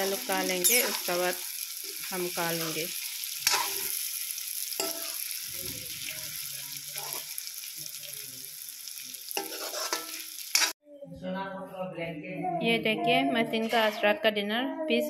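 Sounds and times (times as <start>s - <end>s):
food sizzling in a pan: 0.0s - 10.8s
spatula scraping pan: 0.5s - 2.1s, 3.0s - 4.0s, 9.3s - 10.8s, 13.6s - 14.2s.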